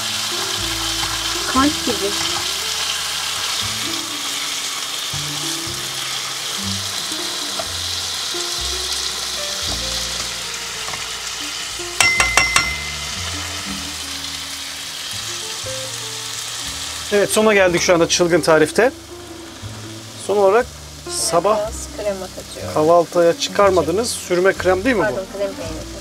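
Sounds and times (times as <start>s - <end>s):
food sizzling in a pan: 0.0s - 26.0s
soft background music: 0.0s - 26.0s
utensil clinking on pan: 12.0s - 13.9s.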